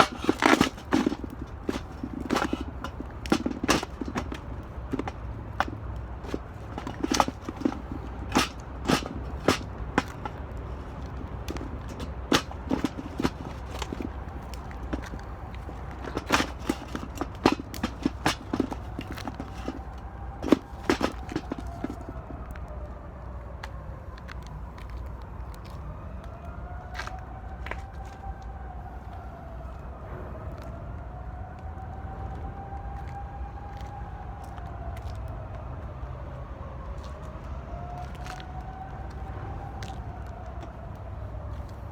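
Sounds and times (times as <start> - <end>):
low fire rumble: 21.6 - 41.9.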